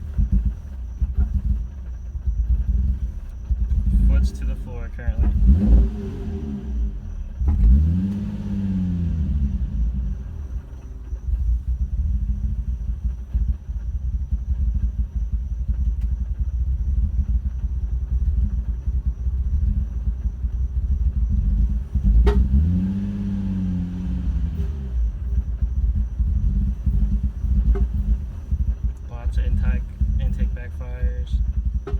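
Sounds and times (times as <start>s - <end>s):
car engine misfiring and revving: 0.0s - 31.9s
engine backfire pop: 21.9s - 23.2s, 26.0s - 28.6s.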